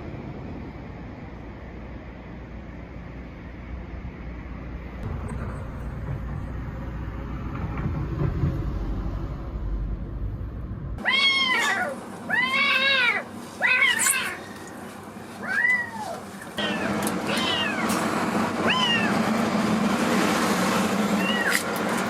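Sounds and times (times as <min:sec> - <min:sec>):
low background rumble: 0:00.0 - 0:19.9
cat meowing loudly: 0:11.0 - 0:14.7, 0:15.4 - 0:18.0, 0:18.6 - 0:19.2, 0:21.2 - 0:21.6.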